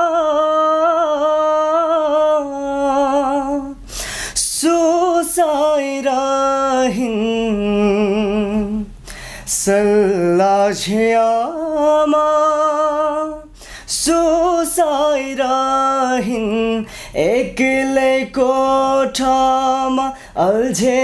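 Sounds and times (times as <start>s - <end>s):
man singing unaccompanied: 0.0s - 21.0s
singer breathing: 3.8s - 4.5s, 8.9s - 9.6s, 13.5s - 14.0s, 16.8s - 17.2s, 20.1s - 20.4s.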